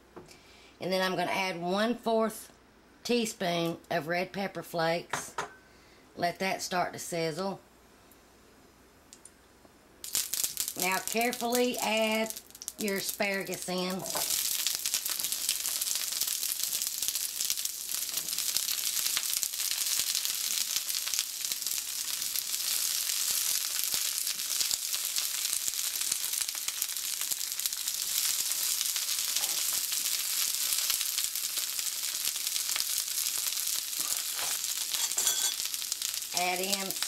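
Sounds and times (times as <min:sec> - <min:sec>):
vegetables sizzling in hot oil: 0:10.0 - 0:37.0.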